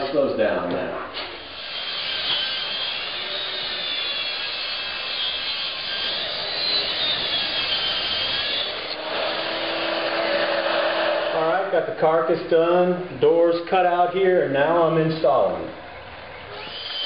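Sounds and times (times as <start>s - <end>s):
track saw cutting plywood: 1.2s - 11.7s.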